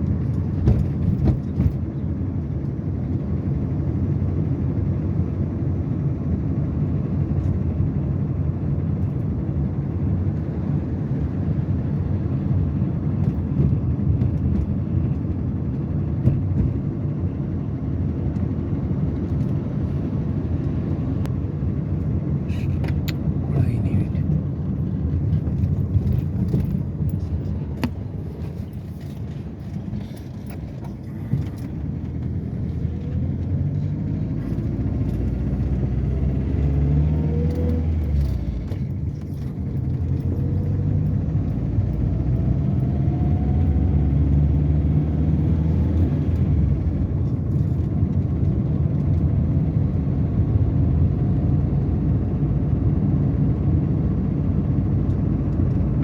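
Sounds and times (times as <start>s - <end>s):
road rumble: 0.0s - 56.0s
car engine accelerating: 19.0s - 52.8s.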